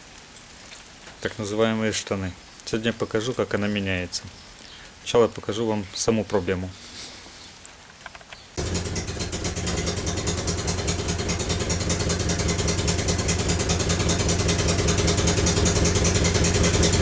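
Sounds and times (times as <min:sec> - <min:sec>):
car engine with rapid exhaust puffing: 0:08.6 - 0:17.0.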